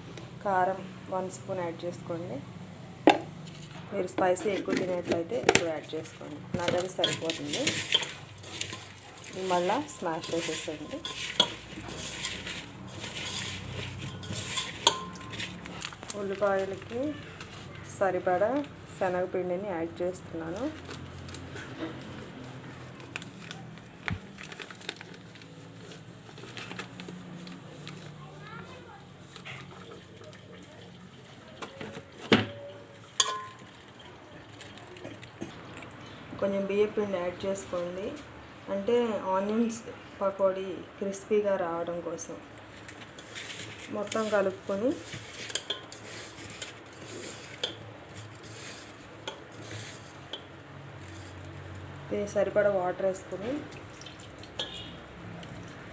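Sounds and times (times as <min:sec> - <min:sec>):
flour and onions crinkling in bowl: 0:03.3 - 0:19.2, 0:20.0 - 0:32.3, 0:32.9 - 0:36.2, 0:42.1 - 0:55.9
light clinks against bowl: 0:14.0 - 0:15.7, 0:33.2 - 0:33.7.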